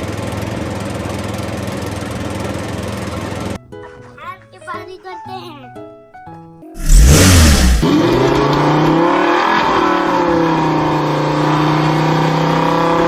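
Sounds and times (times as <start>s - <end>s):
vehicle engine revving: 6.8s - 13.0s.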